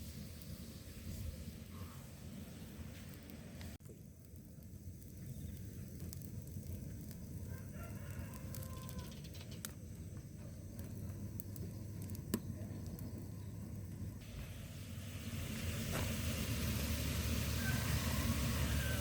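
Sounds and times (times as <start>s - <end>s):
rooster crowing: 7.5s - 9.3s, 17.2s - 19.0s.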